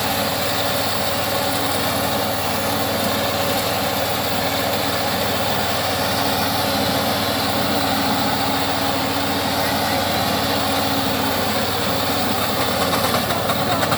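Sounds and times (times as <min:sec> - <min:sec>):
petrol engine running steadily: 0:00.0 - 0:13.9.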